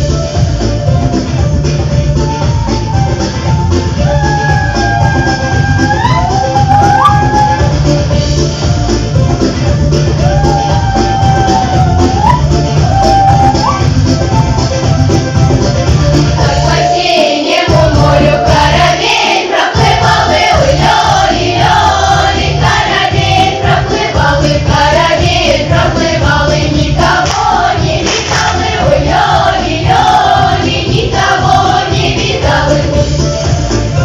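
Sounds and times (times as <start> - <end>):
instrumental accompaniment with bass: 0.0 - 34.0
choir singing in unison: 16.4 - 33.3.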